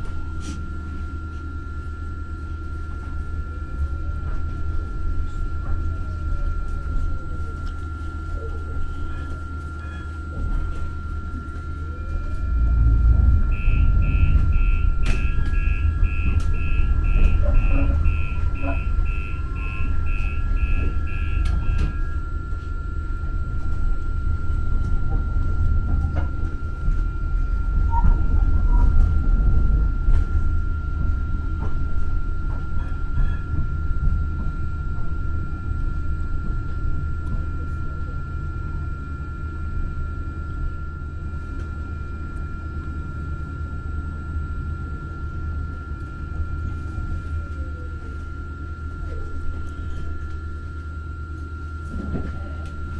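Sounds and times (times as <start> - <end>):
high whine: 0.0 - 52.9
light-rail train rumble: 0.0 - 52.9
regular beeps: 12.0 - 22.6.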